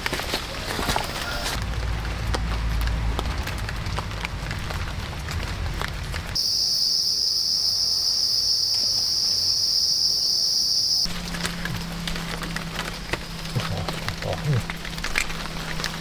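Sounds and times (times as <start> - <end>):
high-pitched insect drone: 6.4 - 11.1.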